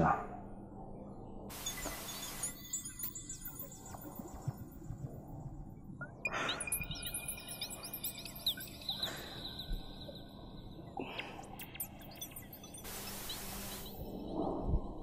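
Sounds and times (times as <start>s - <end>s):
small birds chirping: 6.3s - 14.0s.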